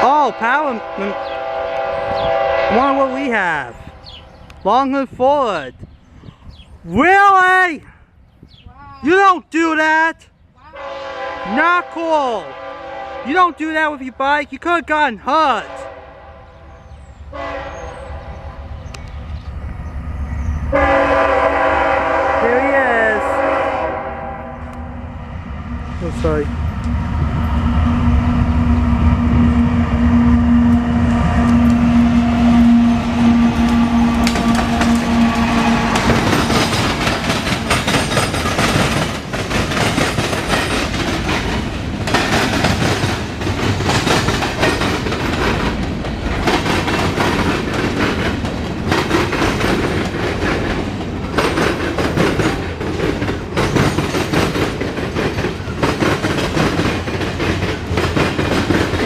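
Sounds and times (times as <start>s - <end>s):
locomotive drone: 0.0s - 4.6s, 15.7s - 59.0s
freight cars rumbling: 11.4s - 59.0s
wheels clattering over rail joints: 33.6s - 59.0s.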